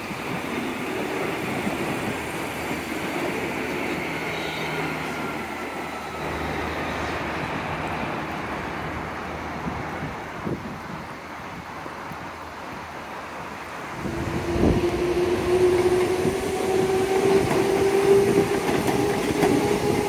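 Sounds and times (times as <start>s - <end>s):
train rolling rumble: 0.0s - 20.0s.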